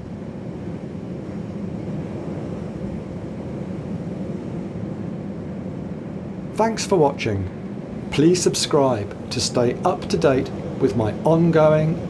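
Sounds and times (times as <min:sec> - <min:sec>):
sea roaring: 0:00.0 - 0:12.0
storm wind: 0:00.0 - 0:12.0.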